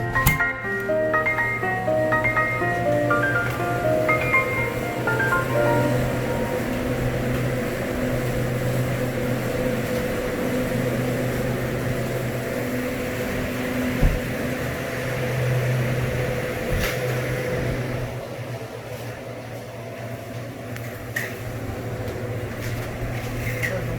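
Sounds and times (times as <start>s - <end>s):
refrigeration unit humming: 0.0s - 23.9s.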